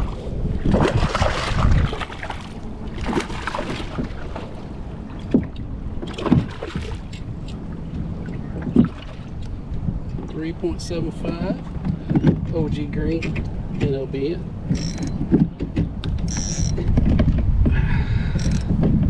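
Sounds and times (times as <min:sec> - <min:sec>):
water splashing: 0:00.0 - 0:09.5.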